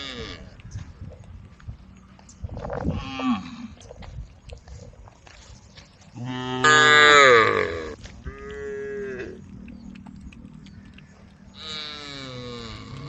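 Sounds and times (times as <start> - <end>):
cattle mooing: 0.0 - 0.5, 6.2 - 9.4, 11.6 - 13.0.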